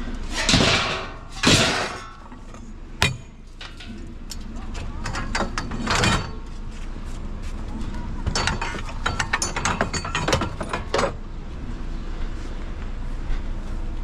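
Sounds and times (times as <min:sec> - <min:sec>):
scrap metal clanking: 0:00.0 - 0:04.1, 0:08.3 - 0:11.2.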